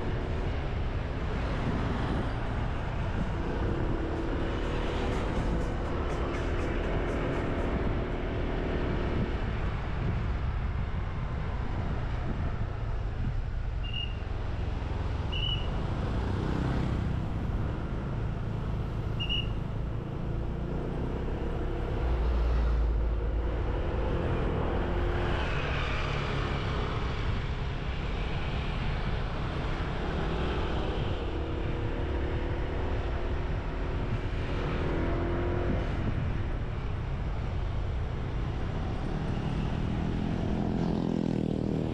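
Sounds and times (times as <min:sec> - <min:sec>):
wind buffeting microphone: 0:00.0 - 0:13.8
road traffic: 0:00.0 - 0:41.9.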